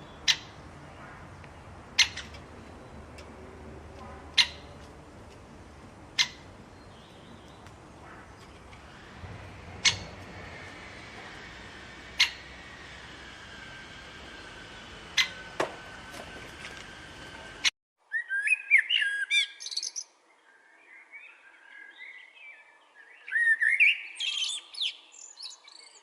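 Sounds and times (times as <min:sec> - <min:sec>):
bird calling: 0:00.0 - 0:19.9.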